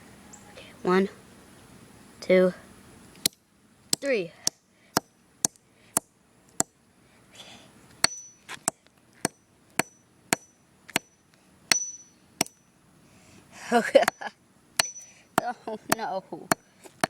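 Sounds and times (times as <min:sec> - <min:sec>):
high ringing: 0:08.0 - 0:08.5, 0:09.4 - 0:12.8, 0:14.8 - 0:15.3.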